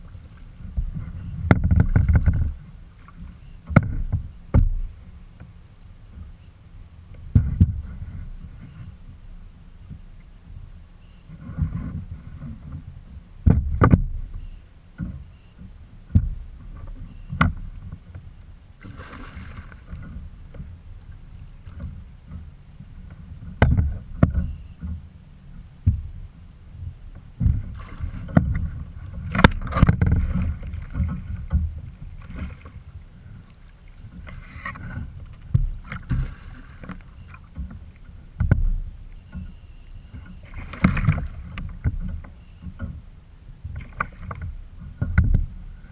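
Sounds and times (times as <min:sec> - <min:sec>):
water splashing and sloshing: 0:00.0 - 0:45.9
knocks against kayak hull: 0:00.8 - 0:02.6, 0:03.7 - 0:04.9, 0:07.3 - 0:08.0, 0:13.4 - 0:14.3, 0:15.0 - 0:16.4, 0:27.4 - 0:32.7, 0:34.2 - 0:37.8, 0:38.4 - 0:39.5, 0:43.7 - 0:45.5.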